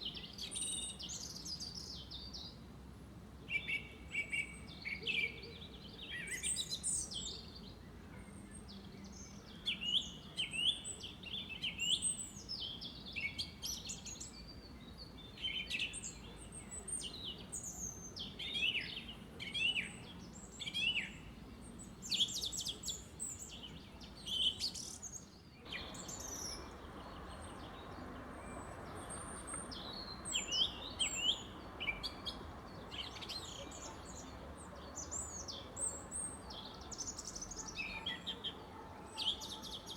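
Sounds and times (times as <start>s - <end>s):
birds chirping and whistling: 25.7s - 34.3s.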